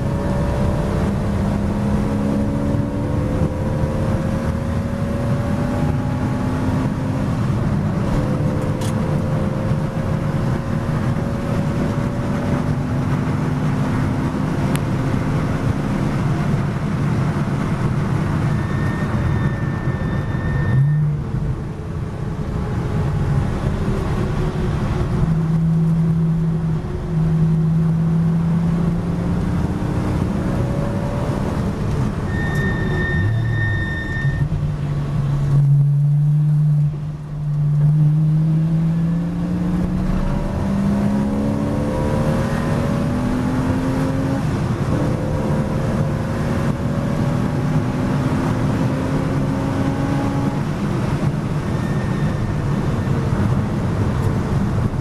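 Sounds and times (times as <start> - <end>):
race car engine accelerating: 0.0 - 21.5, 22.9 - 55.0.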